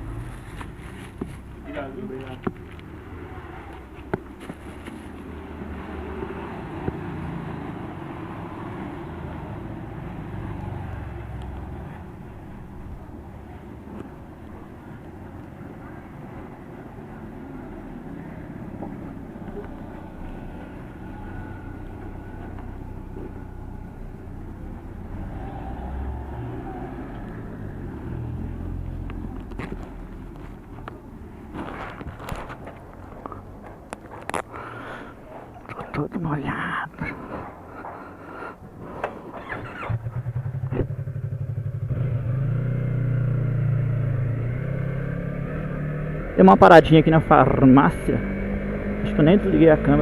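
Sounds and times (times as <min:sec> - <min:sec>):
road and wind noise: 0:00.0 - 0:50.0
motorcycle engine revving: 0:39.0 - 0:50.0.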